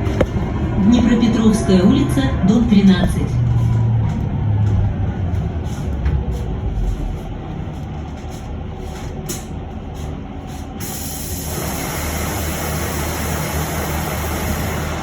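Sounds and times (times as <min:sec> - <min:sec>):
bus interior low hum: 0:00.0 - 0:15.0.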